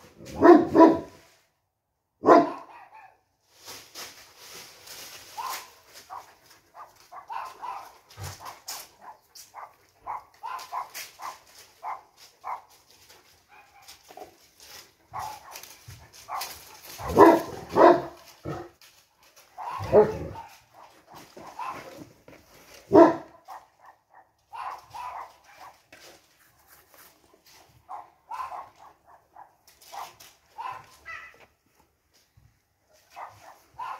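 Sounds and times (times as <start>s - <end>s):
dogs barking: 0.3s - 1.2s, 2.2s - 3.2s, 5.4s - 12.8s, 13.4s - 14.0s, 15.1s - 18.8s, 19.5s - 22.1s, 22.9s - 25.9s, 27.8s - 31.4s, 33.0s - 33.9s.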